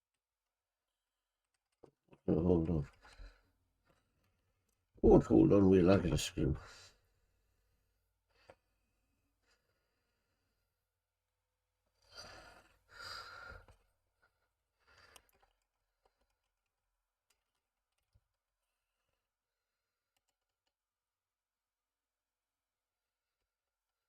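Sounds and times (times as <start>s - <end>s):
breathy sighs: 12.0s - 13.8s
small plastic parts clicking: 15.0s - 19.2s, 20.1s - 20.8s.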